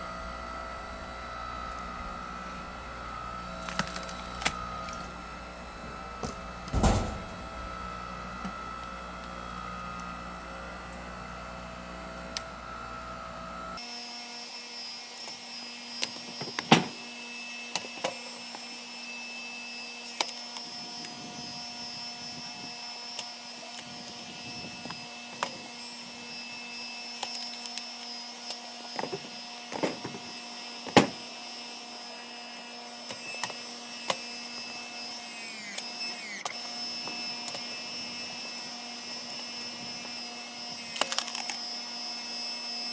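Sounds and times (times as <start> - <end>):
log splitter engine humming: 0.1 - 8.2
logs cracking as they split: 3.6 - 5.1.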